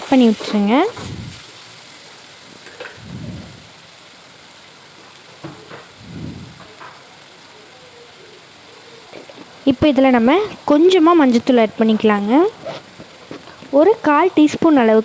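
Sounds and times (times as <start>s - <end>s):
stirring strokes: 0.0s - 1.5s
food sizzling in oil: 0.0s - 15.0s.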